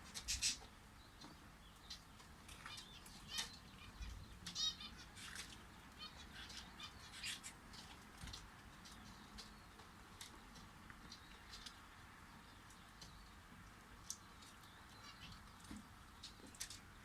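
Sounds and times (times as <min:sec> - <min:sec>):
canaries chirping: 0:00.0 - 0:16.6.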